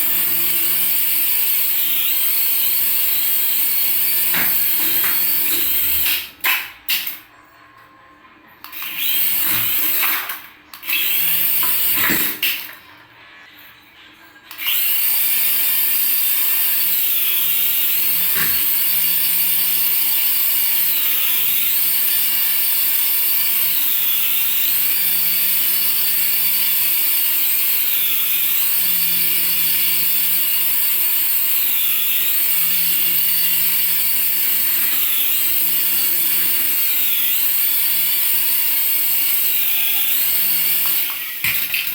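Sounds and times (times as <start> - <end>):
small electric motor whining: 0.0 - 6.3, 8.6 - 10.2, 10.8 - 12.4, 14.5 - 41.9.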